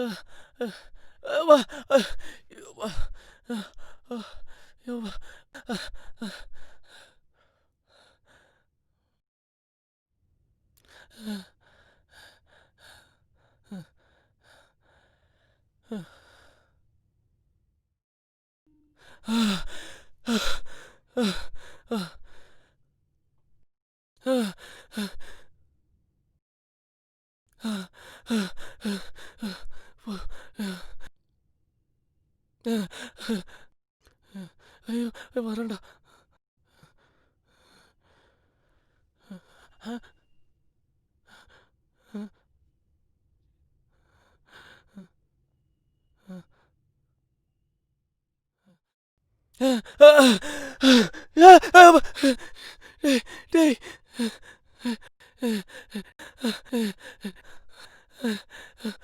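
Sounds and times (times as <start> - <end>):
person panting heavily: 0.0 - 7.0, 49.6 - 57.4.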